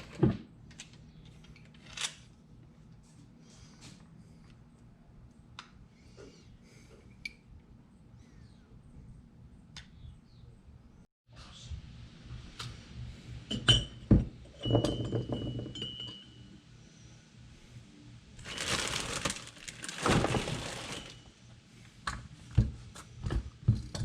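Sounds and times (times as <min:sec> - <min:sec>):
dense rustling noise: 0:18.4 - 0:21.3.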